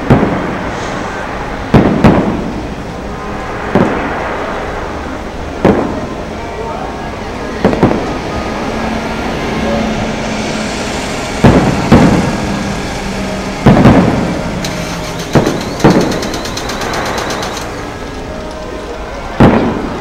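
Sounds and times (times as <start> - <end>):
fireworks booming: 0.0 - 6.4, 7.6 - 8.4, 11.4 - 18.4, 19.4 - 20.0
fireworks crackle: 7.6 - 8.2, 11.4 - 20.0.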